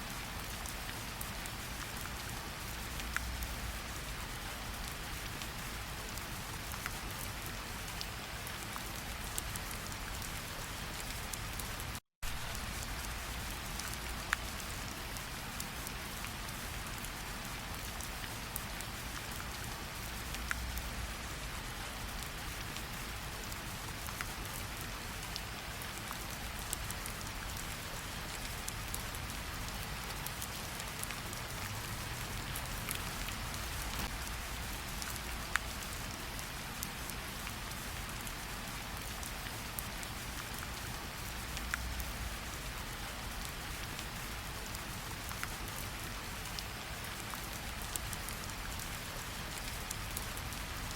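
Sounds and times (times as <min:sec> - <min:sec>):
rain on ground and water: 0:00.0 - 0:50.9.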